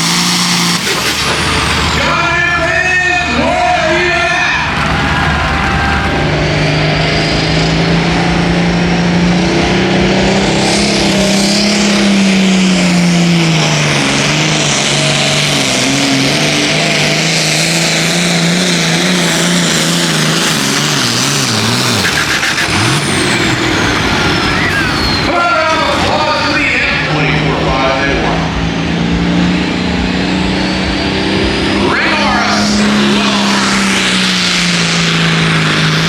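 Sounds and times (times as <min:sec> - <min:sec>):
tractor diesel engine at full throttle: 0:00.0 - 0:36.0
high whine dropping in pitch: 0:04.2 - 0:07.7.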